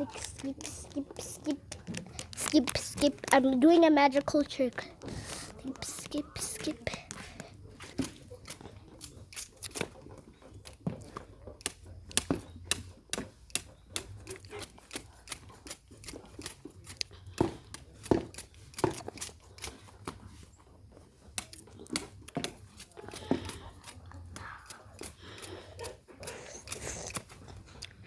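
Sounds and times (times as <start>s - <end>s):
irregular clicks and taps: 0.1s - 5.1s.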